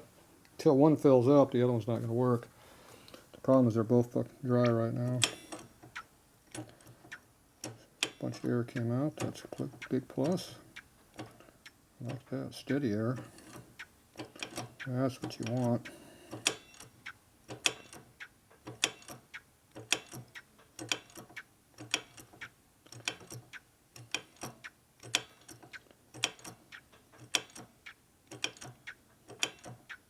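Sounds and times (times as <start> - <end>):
brake pump clicks and clacks: 4.6 - 27.7.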